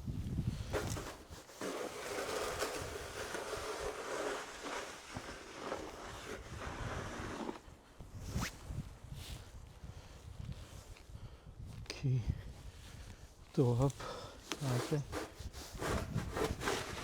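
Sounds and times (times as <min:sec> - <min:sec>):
snow shovel scraping pavement: 0:00.6 - 0:08.0, 0:14.5 - 0:17.0.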